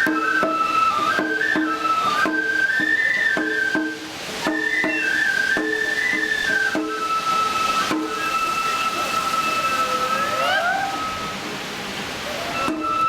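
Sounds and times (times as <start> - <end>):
drum strikes: 0.0 - 8.8
bamboo flute melody: 0.0 - 13.0.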